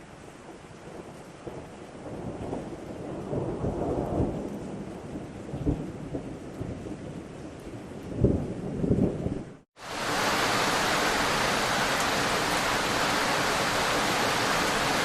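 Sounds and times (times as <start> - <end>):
steady rain: 0.0 - 15.0
thunder rumbling: 1.0 - 15.0.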